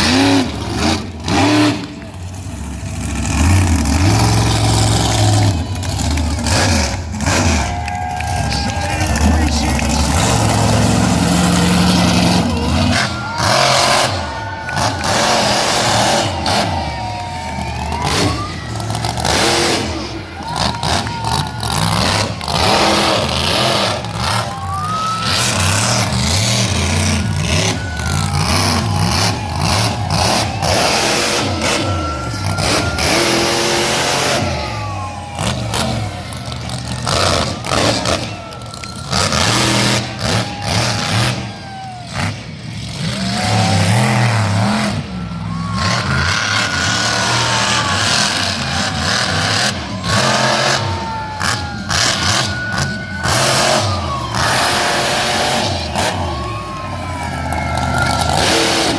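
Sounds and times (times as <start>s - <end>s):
monster truck engine revving: 0.0s - 58.9s.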